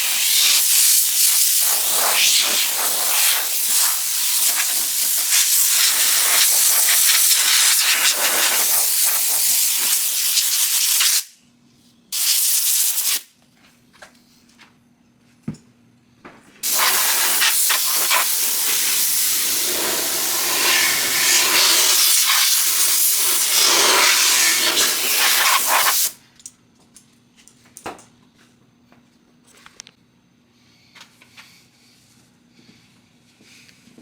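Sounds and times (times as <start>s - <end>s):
water spraying: 16.6s - 26.1s.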